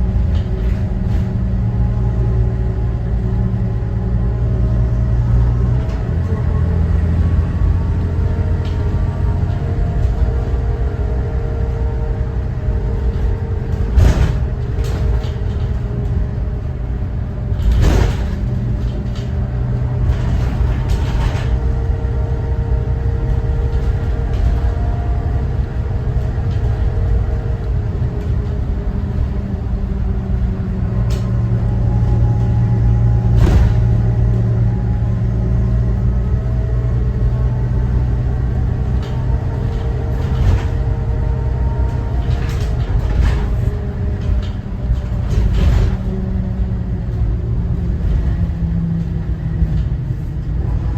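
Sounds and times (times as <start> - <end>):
bus diesel engine rumbling: 0.0 - 50.9
loud knocks with rattling: 33.2 - 34.3.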